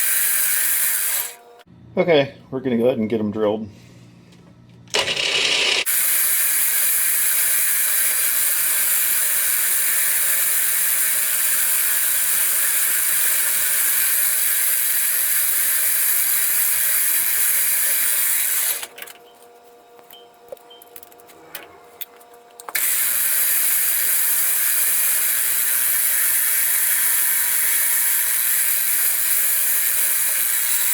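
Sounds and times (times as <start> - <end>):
milling machine drilling metal: 0.0 - 1.4, 4.9 - 18.9, 22.7 - 30.9.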